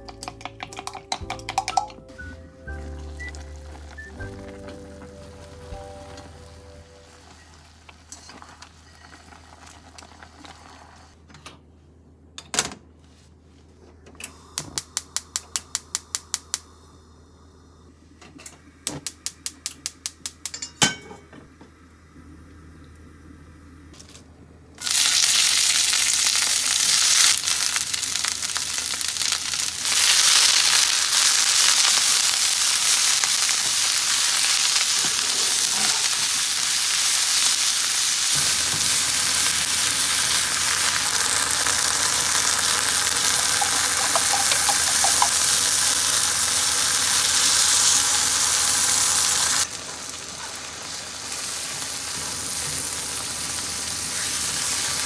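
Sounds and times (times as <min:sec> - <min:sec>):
greens sizzling in a frying pan: 0:03.0 - 0:11.2, 0:24.8 - 0:55.0.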